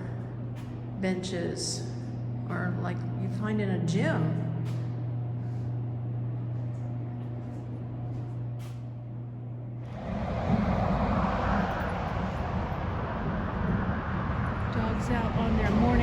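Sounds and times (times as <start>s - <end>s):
steady low hum: 0.0s - 16.0s
road traffic noise: 9.8s - 16.0s.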